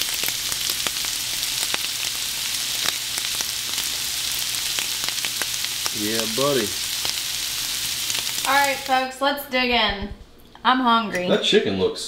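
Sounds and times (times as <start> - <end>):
food sizzling in a frying pan: 0.0 - 9.2.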